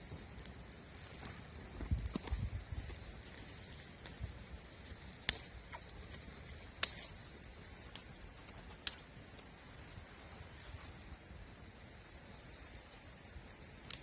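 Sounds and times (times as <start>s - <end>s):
faint hiss: 0.0s - 14.0s
sharp cracks: 5.2s - 5.9s.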